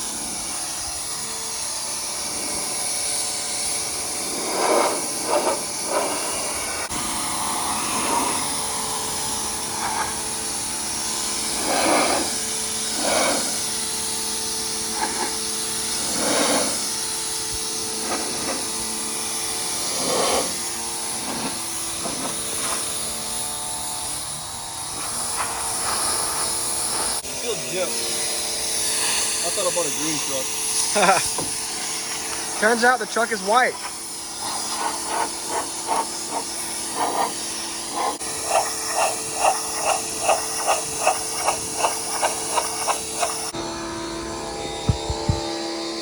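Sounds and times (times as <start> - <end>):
water spray hissing: 0.0 - 23.6, 24.8 - 27.3, 28.6 - 43.6
machine hum: 38.2 - 46.0.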